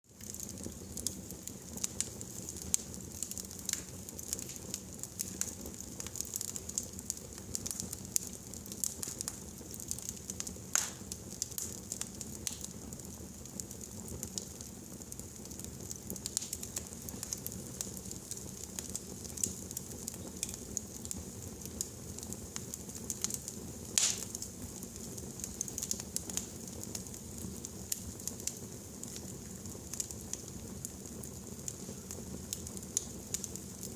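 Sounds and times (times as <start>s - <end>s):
fire crackling and popping: 0.1s - 33.9s
fire rumbling and hissing: 0.1s - 33.9s.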